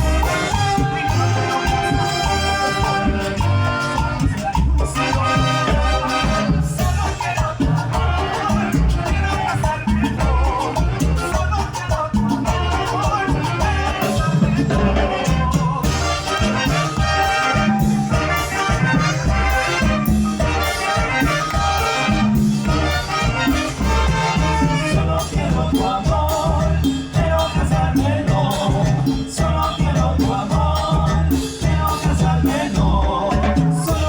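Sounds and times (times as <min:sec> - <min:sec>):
brass lines: 0:00.0 - 0:07.4, 0:08.1 - 0:25.6
live dance band playing: 0:00.0 - 0:34.0
strong bass: 0:00.0 - 0:34.0
maracas shaking: 0:15.8 - 0:32.7.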